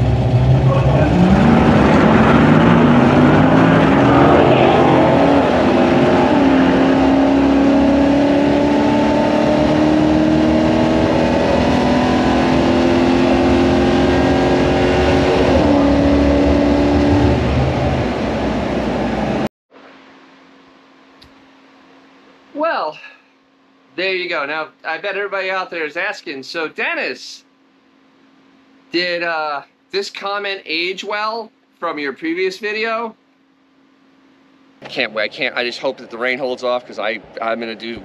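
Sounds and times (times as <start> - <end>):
car engine accelerating at full throttle: 0.0 - 19.5.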